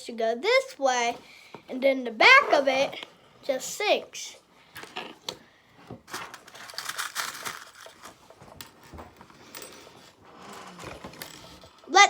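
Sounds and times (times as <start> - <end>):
rustling and crinkling: 4.8 - 11.9.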